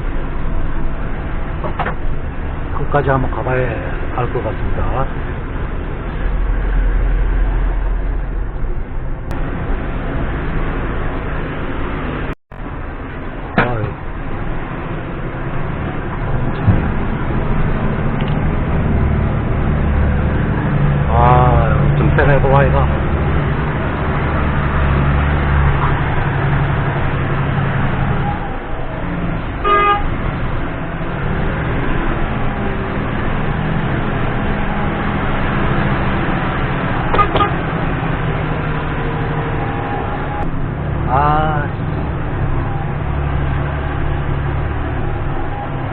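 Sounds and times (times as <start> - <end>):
diesel truck engine droning: 0.0 - 45.9
vehicle horn honk: 29.6 - 30.1, 37.1 - 37.6.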